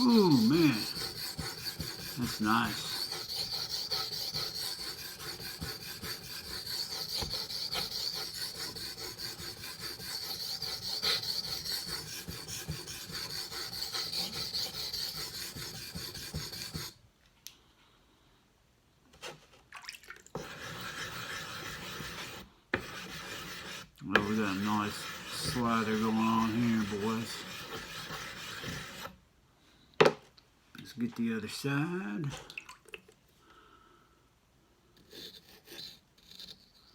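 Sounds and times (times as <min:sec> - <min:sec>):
knife grinding on whetstone: 0:00.0 - 0:16.9, 0:20.4 - 0:29.2.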